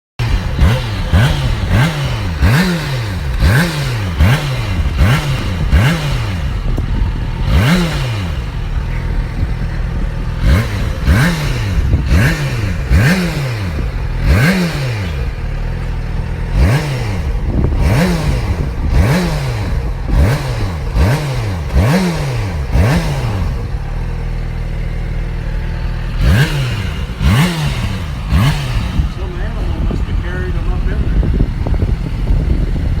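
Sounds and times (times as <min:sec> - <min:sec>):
exhaust pops and clatter: 0:00.2 - 0:14.5, 0:25.6 - 0:33.0
motorcycle engine revving: 0:00.2 - 0:33.0.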